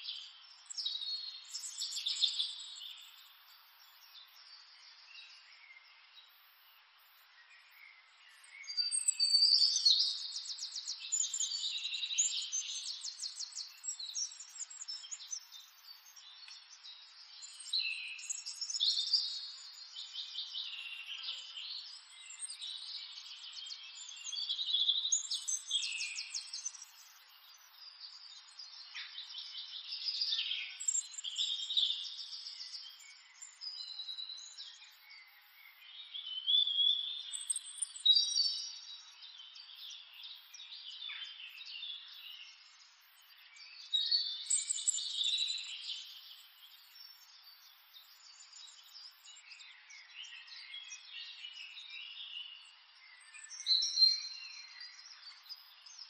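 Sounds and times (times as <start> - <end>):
birds chirping and singing: 8.4 - 52.6.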